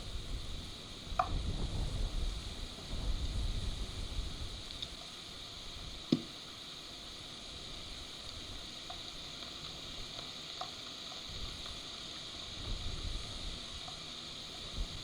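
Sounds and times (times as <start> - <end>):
heavy rain hissing: 0.0 - 15.0
faint dripping ticks: 0.7 - 1.4, 4.6 - 5.3, 5.9 - 15.0.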